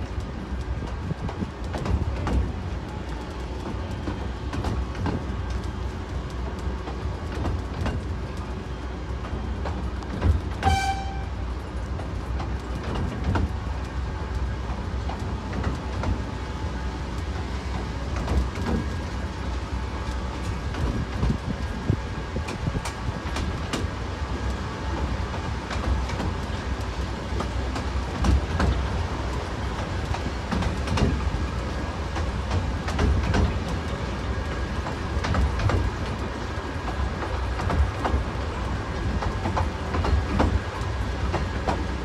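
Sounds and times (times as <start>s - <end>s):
miniature train rumbling on rails: 0.0s - 42.0s
wheels clicking over rail joints: 0.0s - 42.0s
locomotive toot: 10.6s - 11.4s.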